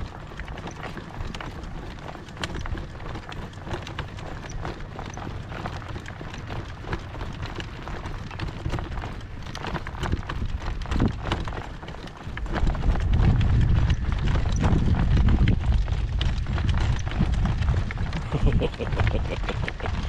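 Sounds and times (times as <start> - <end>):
horse hooves clip-clopping: 0.0 - 20.0
wind buffeting microphone: 8.1 - 20.0.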